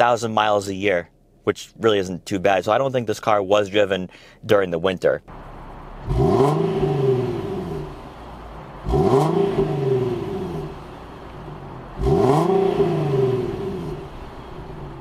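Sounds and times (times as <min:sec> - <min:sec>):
car engine revving: 0:05.3 - 0:15.0.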